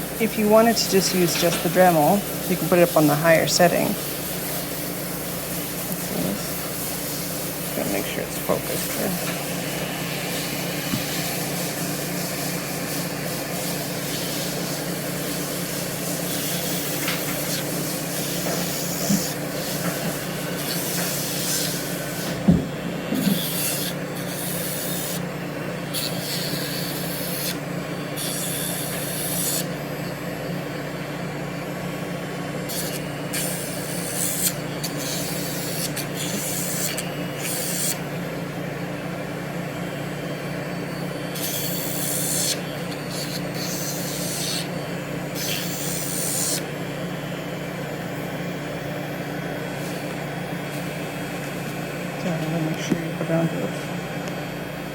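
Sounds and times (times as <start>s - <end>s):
nail grinder motor hum: 16.1s - 22.4s, 23.1s - 25.2s, 25.8s - 29.8s, 32.6s - 38.1s, 41.3s - 46.8s
grinder rasping on nail: 16.2s - 22.1s, 23.2s - 25.2s, 25.9s - 27.6s, 28.2s - 29.7s, 32.7s - 38.0s, 41.3s - 46.7s.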